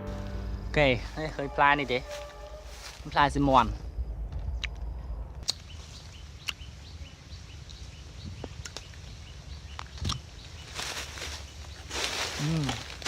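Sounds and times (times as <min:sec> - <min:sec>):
wind rumble on microphone: 0:01.8 - 0:10.6.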